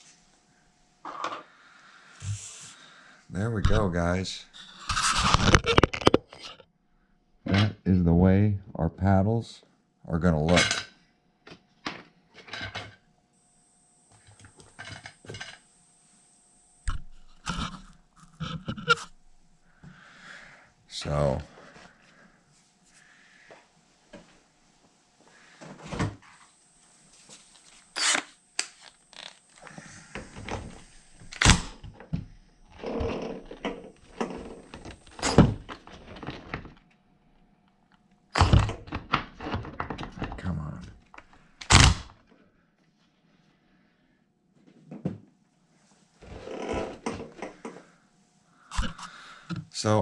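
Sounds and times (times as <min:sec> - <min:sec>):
knocks and clatters of tools: 0:10.5 - 0:13.0, 0:14.4 - 0:15.6.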